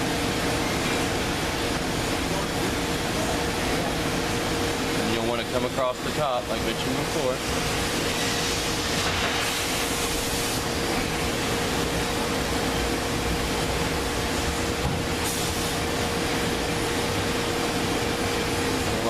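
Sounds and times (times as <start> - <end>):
ventilation hiss: 0.0 - 19.0.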